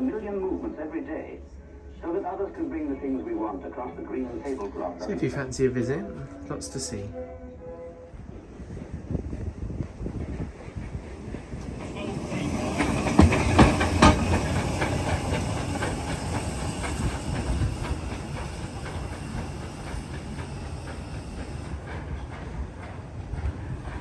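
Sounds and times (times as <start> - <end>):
train passing by: 0.0 - 24.0
wheel clacks over rail joints: 11.6 - 23.4.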